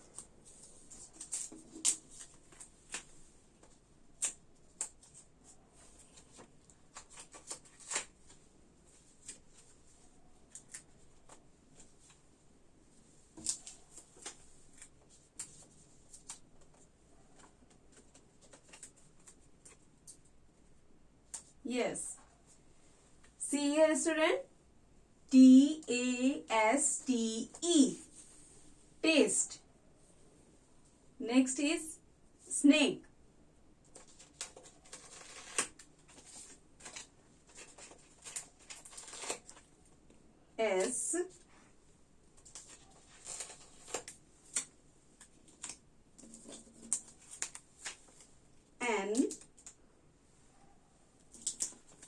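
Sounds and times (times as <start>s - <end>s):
light clicks and rustles of handling: 0.0s - 12.3s, 12.9s - 20.4s, 33.8s - 40.2s, 40.8s - 52.0s.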